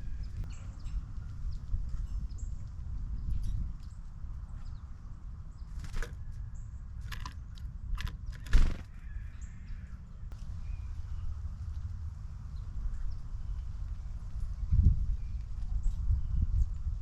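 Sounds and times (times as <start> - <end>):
crows cawing: 8.8 - 10.0.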